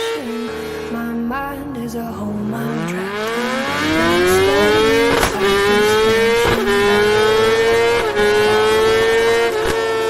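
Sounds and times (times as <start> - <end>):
motorcycle engine revving high: 0.0 - 10.0
gear upshifts: 2.2 - 10.0.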